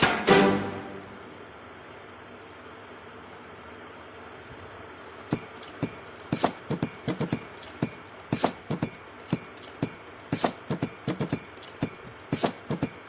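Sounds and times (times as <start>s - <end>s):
faint steady hiss: 0.0s - 13.0s
sharp clicks and light taps: 5.3s - 13.0s.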